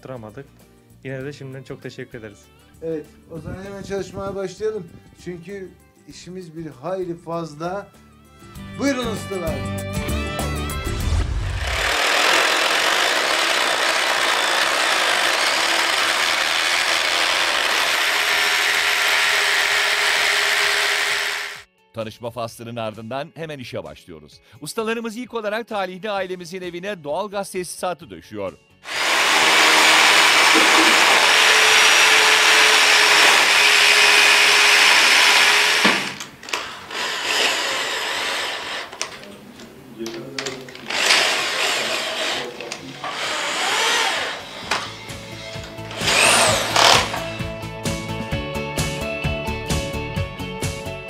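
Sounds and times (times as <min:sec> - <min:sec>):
power tool rattling: 0:11.3 - 0:21.7, 0:28.9 - 0:39.3, 0:40.4 - 0:47.5.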